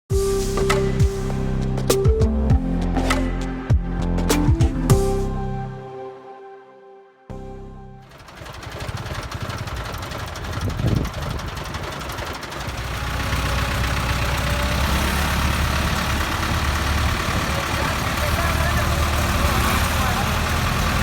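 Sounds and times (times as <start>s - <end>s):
intro tune: 0.1s - 9.0s
tractor diesel engine running: 8.0s - 21.0s.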